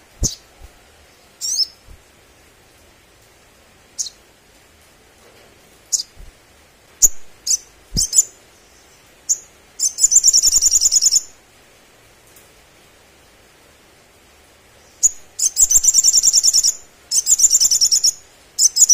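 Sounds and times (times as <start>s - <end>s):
bird chirping and trilling: 0.2s - 0.5s, 1.4s - 1.8s, 4.0s - 4.2s, 5.9s - 6.2s, 7.0s - 11.4s, 14.8s - 18.9s.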